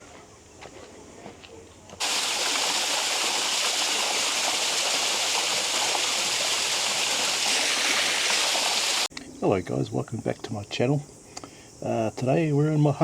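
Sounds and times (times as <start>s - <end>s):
rushing water: 2.0s - 9.1s.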